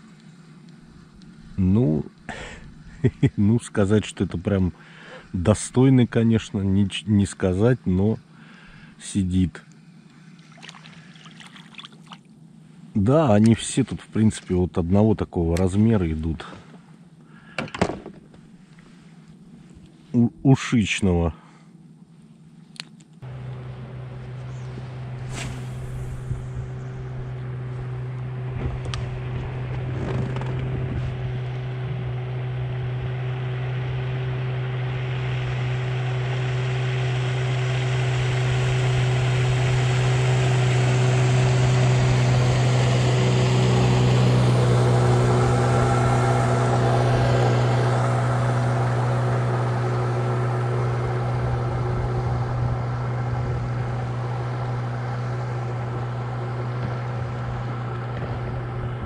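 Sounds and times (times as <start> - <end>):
outboard motor running: 9.7 - 12.6, 23.2 - 59.0
rushing water: 10.5 - 12.2
passing motorboat engine: 23.2 - 59.0.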